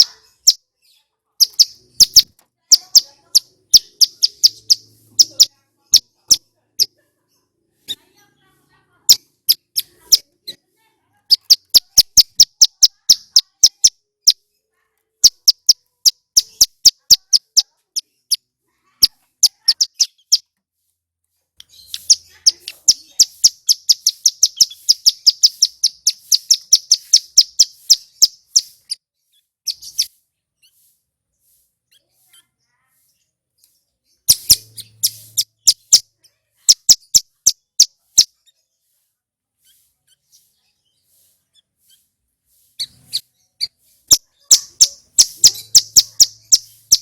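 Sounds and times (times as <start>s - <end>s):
bird singing sharp chipping notes: 1.4s - 6.9s, 21.6s - 30.9s, 33.6s - 38.4s, 42.8s - 47.0s.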